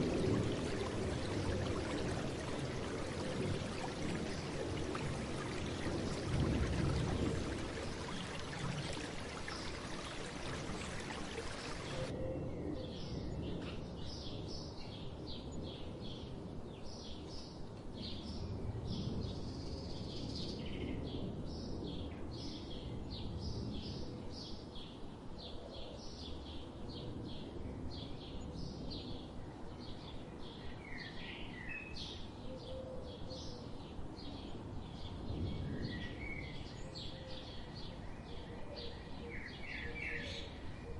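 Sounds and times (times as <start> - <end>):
steady low background noise: 0.0 - 20.6.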